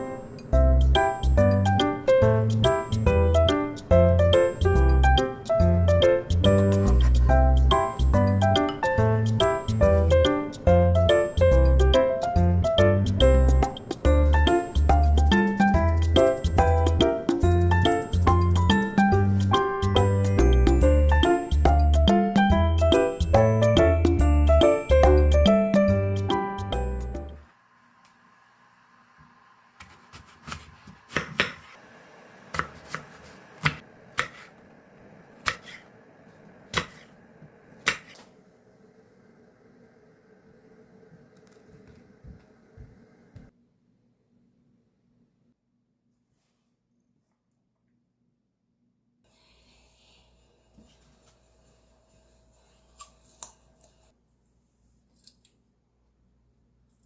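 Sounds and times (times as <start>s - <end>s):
faint room hum: 27.2s - 57.0s.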